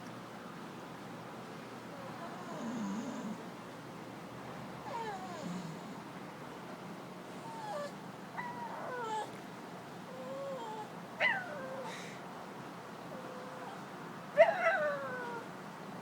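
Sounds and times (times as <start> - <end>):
dog whining: 4.8 - 5.6, 7.4 - 9.4, 10.1 - 12.1, 13.2 - 15.4.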